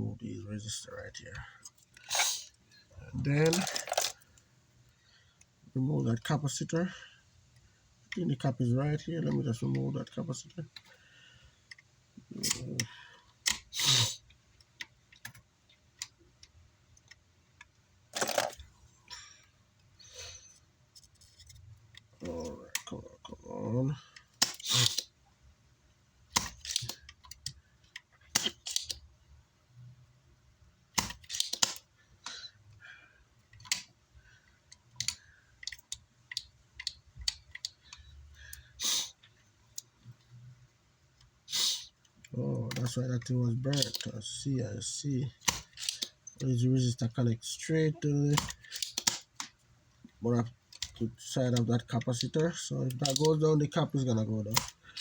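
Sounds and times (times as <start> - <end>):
short hiss: 2.1 - 2.5
hand tools clicking and tapping: 26.3 - 29.0, 31.0 - 32.4, 45.4 - 46.4, 48.3 - 49.6
small hand tools clicking and tapping: 31.0 - 32.4, 48.3 - 49.5.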